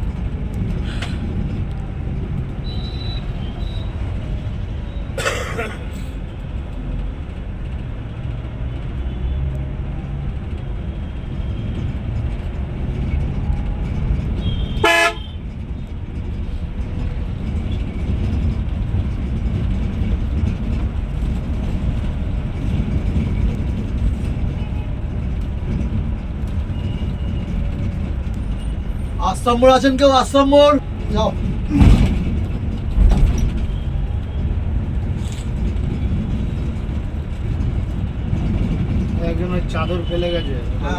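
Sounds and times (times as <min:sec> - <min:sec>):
bus engine rumble: 0:00.0 - 0:40.9
bus horn toot: 0:02.6 - 0:04.1, 0:14.4 - 0:15.5.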